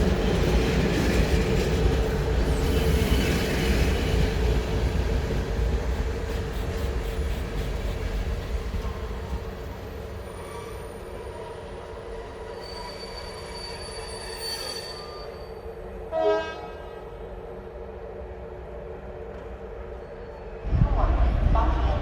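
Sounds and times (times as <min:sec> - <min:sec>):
train brakes squealing: 0:02.4 - 0:04.2, 0:08.8 - 0:16.6, 0:19.8 - 0:20.6
train horn toot: 0:16.1 - 0:17.1, 0:20.7 - 0:22.0.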